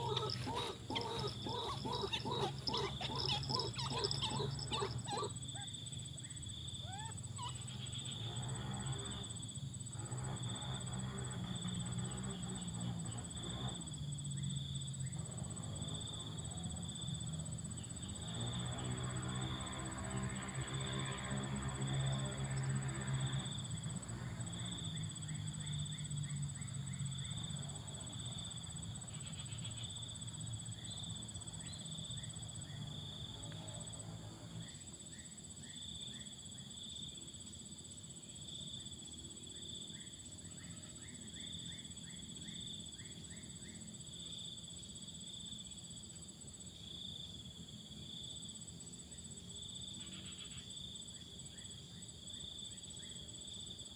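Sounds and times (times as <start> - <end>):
insects chirping: 0.0 - 53.9.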